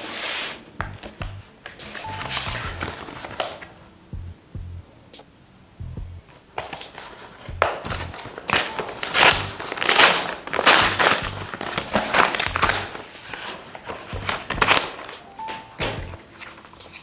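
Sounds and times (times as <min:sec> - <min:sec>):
plastic packaging crinkling: 0:01.0 - 0:03.9, 0:06.4 - 0:17.0.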